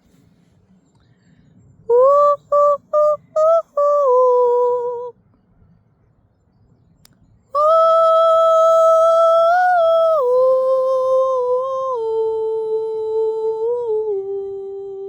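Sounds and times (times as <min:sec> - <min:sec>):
woman singing a long note: 0:01.9 - 0:05.1, 0:07.6 - 0:15.0.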